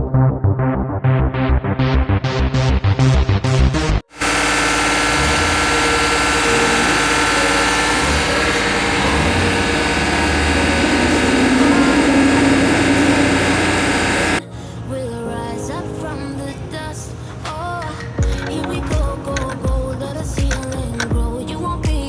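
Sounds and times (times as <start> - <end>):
music: 0.0 - 4.1, 5.4 - 22.0
misfiring engine running: 4.1 - 14.4.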